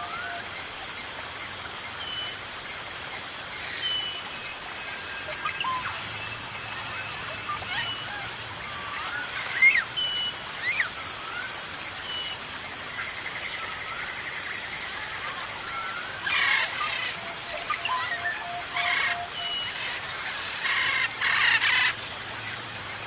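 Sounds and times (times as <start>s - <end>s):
steady hiss: 0.0s - 23.0s
birds chirping and whistling: 3.6s - 12.4s, 15.5s - 23.0s
harsh bird calls: 13.6s - 22.8s.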